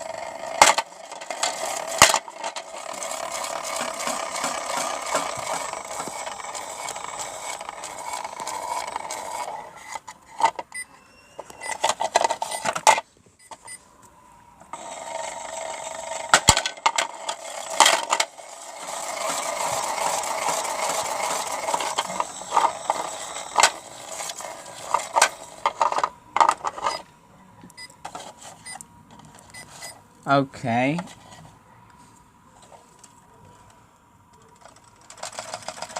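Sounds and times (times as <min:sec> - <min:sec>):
small motor hum: 0:00.0 - 0:10.1, 0:14.7 - 0:26.0.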